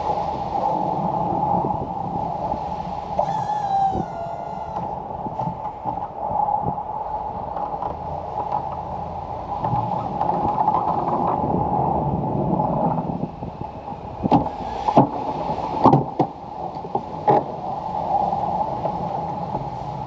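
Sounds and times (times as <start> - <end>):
high squeal: 3.2 - 4.9.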